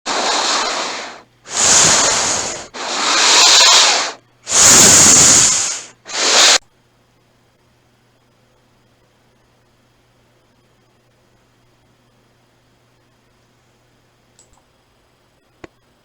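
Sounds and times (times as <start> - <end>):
hissing breath-like bursts: 0.1 - 6.6
faint hum: 0.1 - 16.0.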